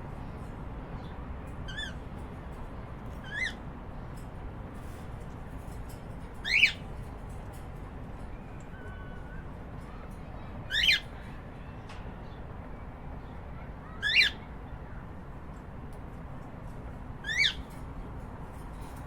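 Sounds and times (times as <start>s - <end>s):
cockatiel calls: 14.0s - 14.5s, 17.2s - 17.7s.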